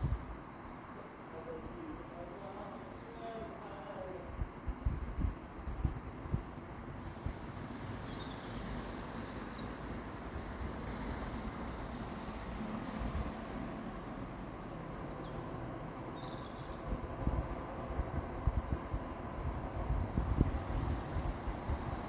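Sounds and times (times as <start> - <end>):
wind buffeting microphone: 0.0 - 0.4, 4.3 - 7.7, 16.7 - 22.0.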